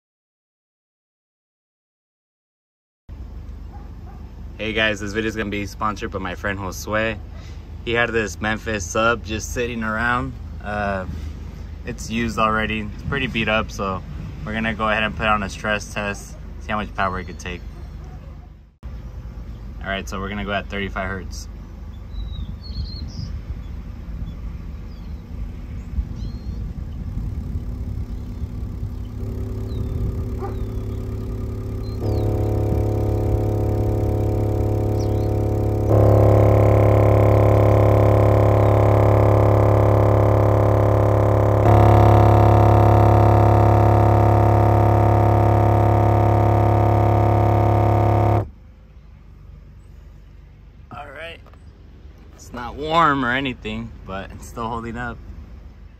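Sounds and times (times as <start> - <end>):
subwoofer low test tone: 26.0 - 48.5.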